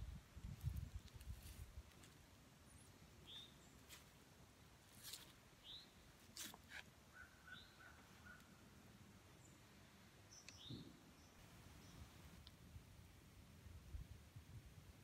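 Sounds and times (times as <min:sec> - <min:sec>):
faint bird chirps: 0:02.6 - 0:03.9, 0:05.6 - 0:06.1, 0:07.1 - 0:08.7, 0:09.3 - 0:12.2.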